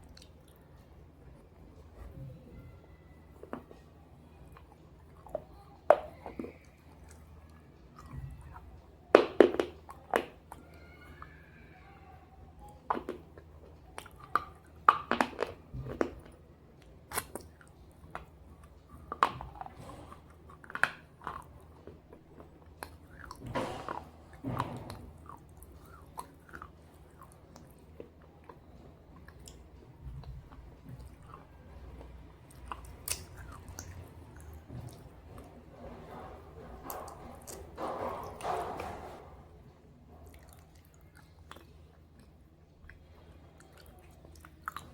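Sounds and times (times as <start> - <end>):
crunchy chewing: 17.1 - 38.6, 40.2 - 44.9.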